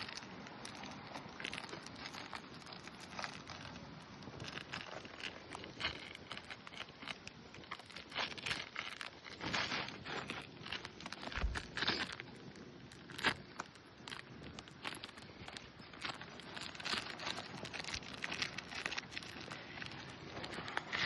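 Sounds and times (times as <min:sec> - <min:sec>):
scraping and crackling on shingle roof: 0:00.0 - 0:21.0.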